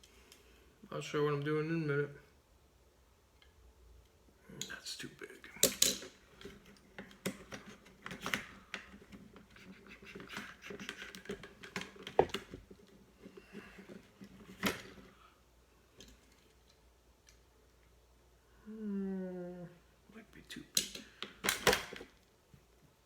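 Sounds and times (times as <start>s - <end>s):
tools clicking and rattling: 5.5s - 15.1s.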